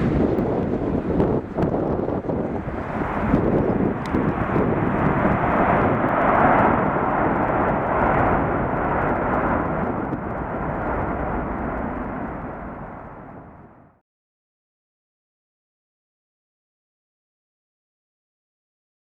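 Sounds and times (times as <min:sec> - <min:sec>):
airliner engines roaring overhead: 0:00.0 - 0:14.0.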